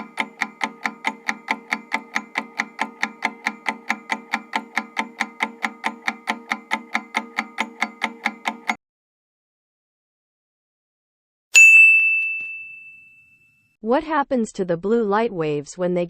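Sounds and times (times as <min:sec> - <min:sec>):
clock-like ticking: 0:00.0 - 0:08.8.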